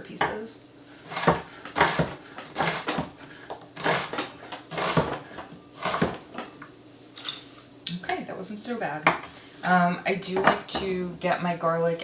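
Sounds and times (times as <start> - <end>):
knife chopping on cutting board: 1.1 - 3.2, 4.7 - 5.2.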